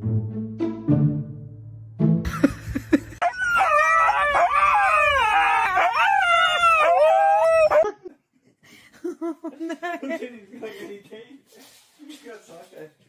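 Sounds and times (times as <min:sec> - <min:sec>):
dog howling: 0:03.2 - 0:07.8.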